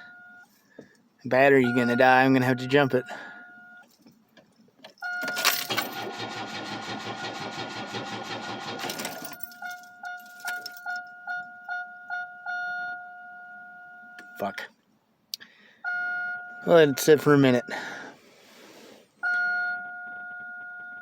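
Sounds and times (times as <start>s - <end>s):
two-tone warning chime: 1.6s - 3.9s, 15.9s - 18.0s
car starter cranking engine: 5.2s - 9.7s.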